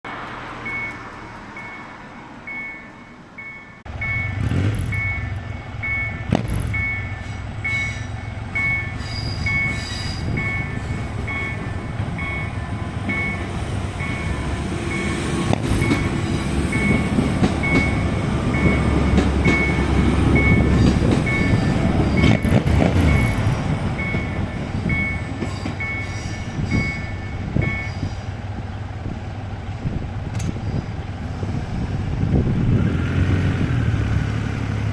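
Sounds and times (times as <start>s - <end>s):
train rumbling past: 0.1s - 34.9s
electronic warning signal beeping: 0.7s - 1.0s, 1.6s - 28.0s.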